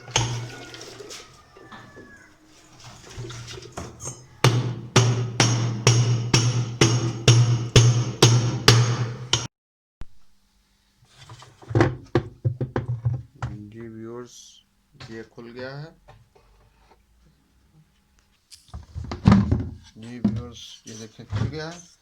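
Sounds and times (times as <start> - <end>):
hammer striking metal: 4.0 - 9.5.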